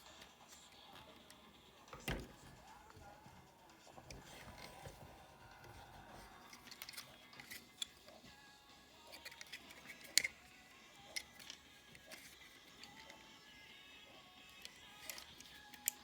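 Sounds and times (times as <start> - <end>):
plastic toy clicks: 14.5 - 16.0.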